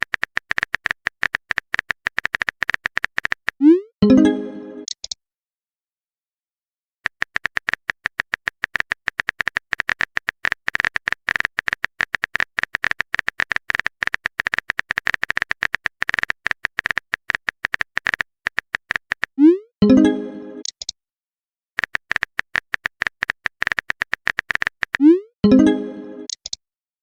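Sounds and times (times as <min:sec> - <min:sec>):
phone keyboard typing taps: 0:00.0 - 0:03.6, 0:07.1 - 0:19.4, 0:21.8 - 0:25.0
notification tone: 0:03.6 - 0:04.9, 0:19.4 - 0:20.7, 0:25.0 - 0:26.4.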